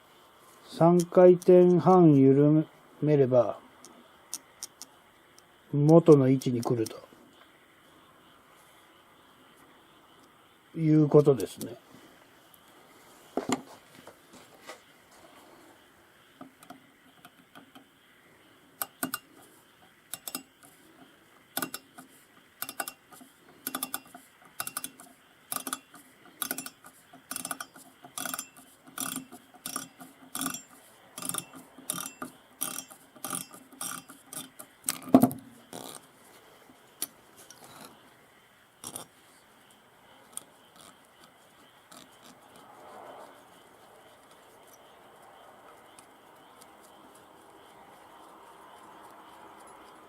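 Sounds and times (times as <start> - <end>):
small metal clicks and taps: 18.8 - 36.0.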